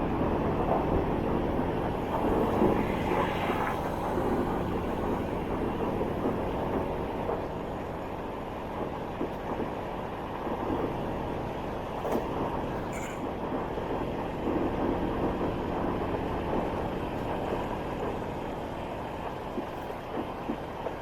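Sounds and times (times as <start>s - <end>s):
motorbike riding: 0.1s - 8.1s.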